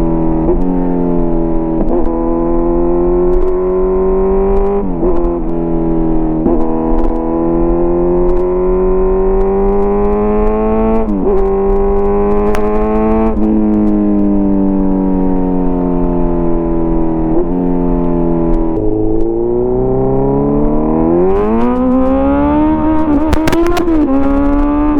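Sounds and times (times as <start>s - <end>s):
motorcycle engine accelerating: 0.0s - 24.9s.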